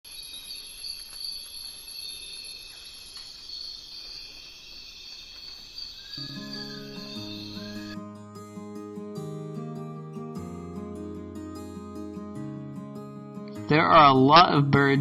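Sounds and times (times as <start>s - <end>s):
insect chorus trilling: 0.1s - 8.0s
plucked guitar tune: 6.2s - 15.0s.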